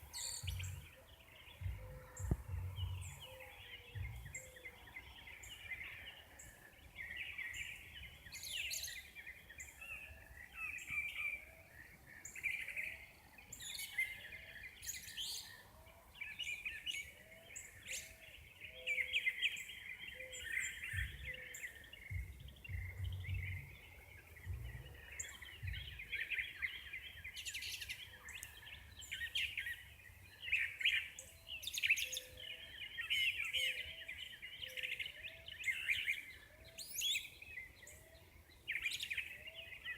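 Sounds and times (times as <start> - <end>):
birds chirping and singing: 0.0 - 39.9
low rumbles: 1.6 - 3.2, 22.1 - 23.7, 24.4 - 25.0.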